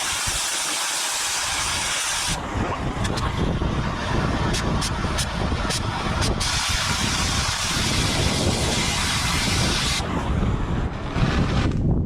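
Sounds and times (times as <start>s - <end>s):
cutting torch hissing: 0.0s - 11.6s
wind buffeting microphone: 1.4s - 12.0s.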